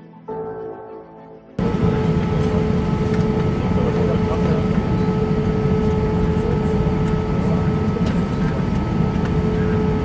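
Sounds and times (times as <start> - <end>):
airliner engine drone: 1.6 - 10.0
constant hum tone: 1.6 - 10.0.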